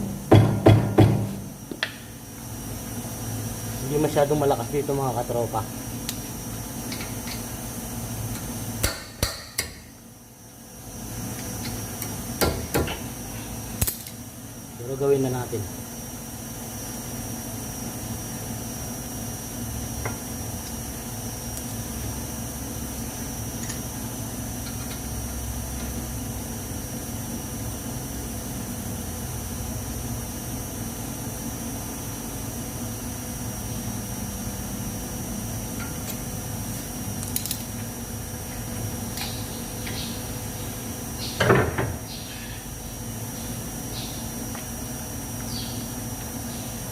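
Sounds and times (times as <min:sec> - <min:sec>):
low mechanical hum: 0:00.0 - 0:46.9
sharp metal knocks: 0:00.3 - 0:01.4.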